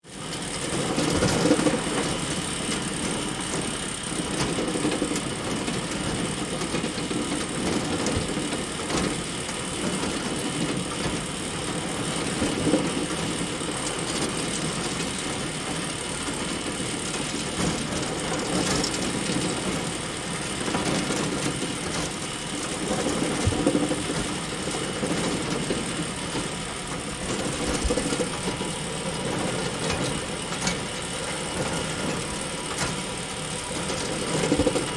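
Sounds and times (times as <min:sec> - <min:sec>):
chain conveyor clatter: 0:04.2 - 0:34.9
scattered knocks: 0:21.6 - 0:26.5.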